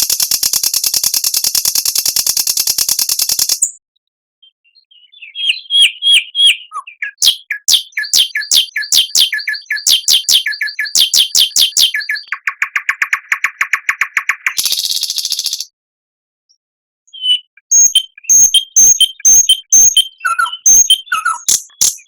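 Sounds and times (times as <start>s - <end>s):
songbird singing: 4.4s - 15.7s, 17.1s - 22.0s.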